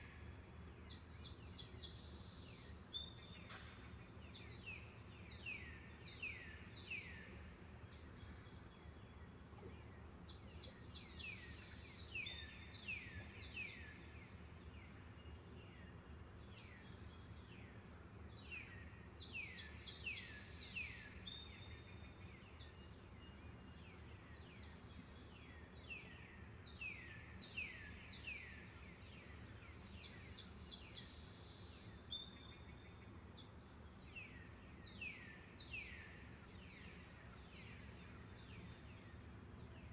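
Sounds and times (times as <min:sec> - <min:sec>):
forest birds singing: 0:18.4 - 0:39.9.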